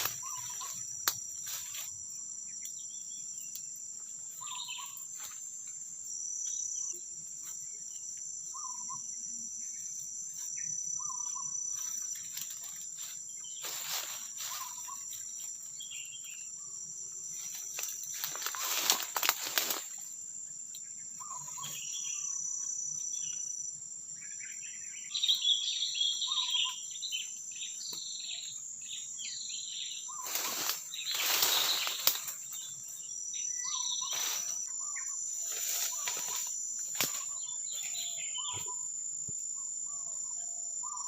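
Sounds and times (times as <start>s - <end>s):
short chirping calls: 0.0s - 0.8s, 4.4s - 5.0s, 25.1s - 38.9s
insects droning: 0.0s - 41.0s.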